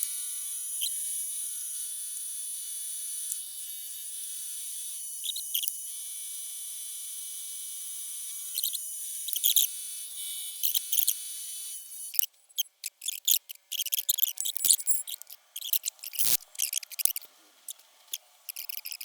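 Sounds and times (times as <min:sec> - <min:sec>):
sharp squeaky sounds: 0:12.2 - 0:17.2, 0:18.5 - 0:19.0.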